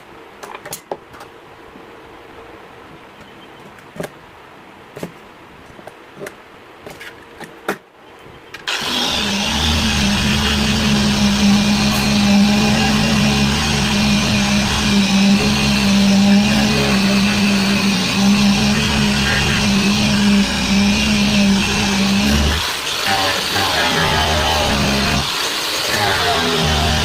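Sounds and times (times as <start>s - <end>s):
power tool motor whirring: 8.6s - 27.0s.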